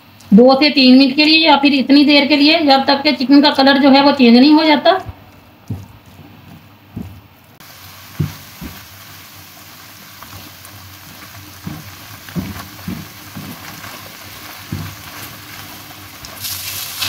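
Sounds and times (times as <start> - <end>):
meat sizzling in oil: 7.6 - 17.0
spatula knocking against pan: 11.6 - 15.2.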